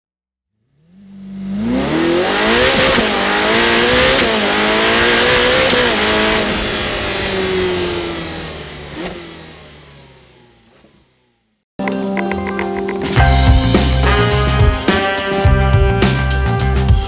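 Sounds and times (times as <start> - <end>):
sports car accelerating through gears: 0.6 - 11.6.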